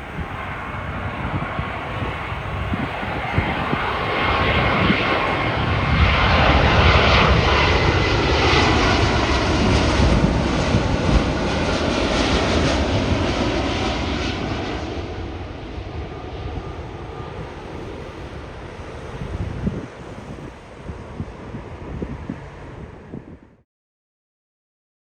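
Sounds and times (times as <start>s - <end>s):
faint high jet whine: 0.0s - 23.6s
jet airliner engine roar: 0.0s - 23.6s.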